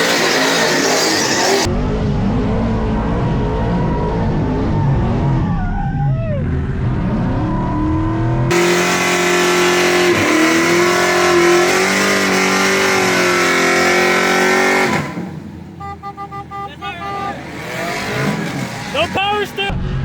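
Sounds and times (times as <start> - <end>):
tires squealing: 0.0 - 1.7, 16.7 - 19.7.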